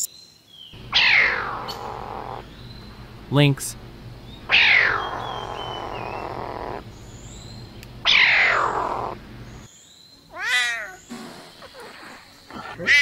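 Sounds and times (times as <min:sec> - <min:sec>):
birds chirping faintly: 0:00.0 - 0:13.0
lynx yowling: 0:00.9 - 0:02.5, 0:04.5 - 0:06.8, 0:08.0 - 0:09.2, 0:10.3 - 0:11.0, 0:11.6 - 0:13.0.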